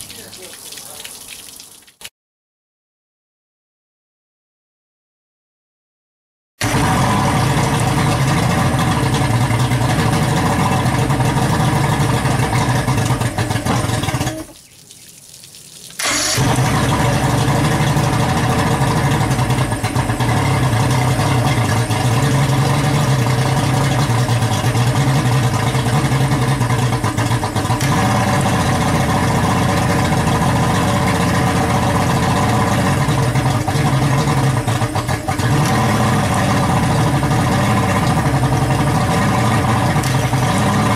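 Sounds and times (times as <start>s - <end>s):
outboard motor running: 6.6s - 14.6s, 16.0s - 40.9s.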